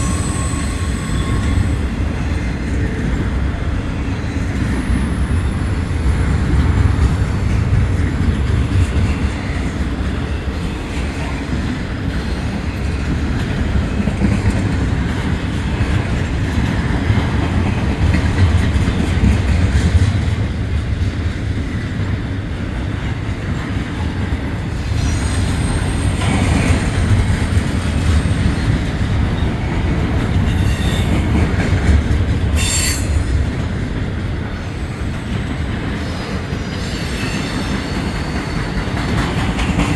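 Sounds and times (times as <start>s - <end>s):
wheel squeals: 0.0s - 14.3s, 30.4s - 31.3s, 32.5s - 33.3s, 34.6s - 39.9s
freight train rumbling: 0.0s - 39.9s.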